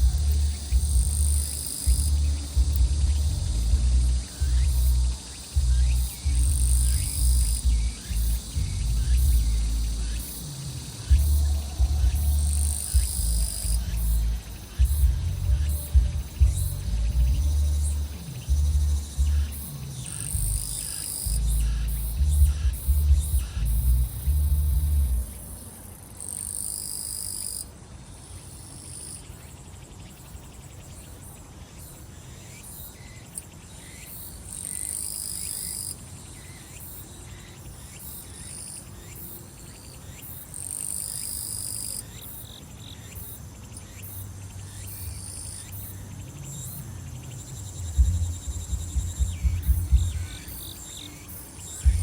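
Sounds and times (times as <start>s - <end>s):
deep thumping beat: 0.0s - 19.7s, 20.3s - 25.3s, 47.8s - 50.7s, 51.8s - 52.0s
insects trilling: 0.0s - 52.0s
short insect chirps: 0.0s - 52.0s
high buzzing insect phrase: 47.3s - 52.0s.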